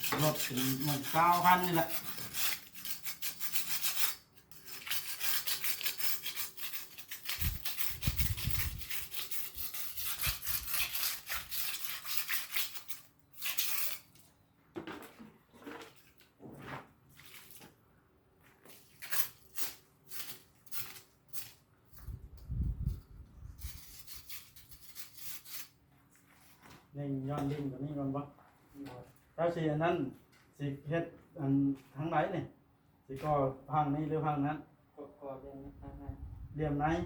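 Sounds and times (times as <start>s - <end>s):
metal tool scraping wet mortar: 0.0s - 14.3s, 18.7s - 25.8s.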